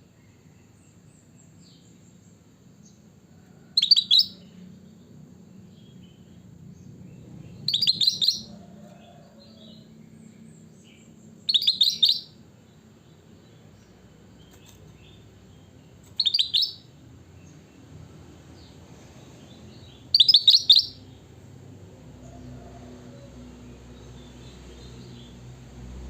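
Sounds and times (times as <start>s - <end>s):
faint low hum: 0.0s - 26.0s
bulbul chirping: 7.6s - 8.5s, 11.5s - 12.4s, 16.1s - 16.9s, 20.1s - 21.0s.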